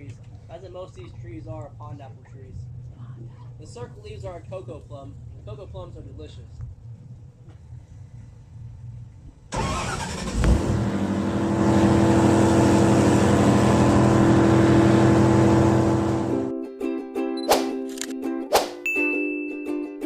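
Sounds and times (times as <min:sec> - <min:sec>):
engine starting and running: 0:09.5 - 0:16.5.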